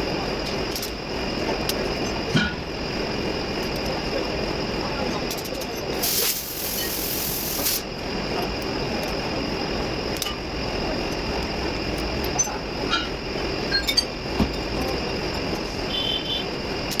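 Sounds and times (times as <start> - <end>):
air hiss: 6.0 - 7.9.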